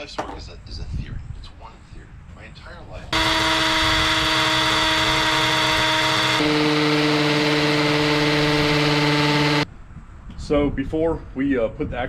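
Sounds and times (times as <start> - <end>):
electric drill running: 3.2 - 9.6.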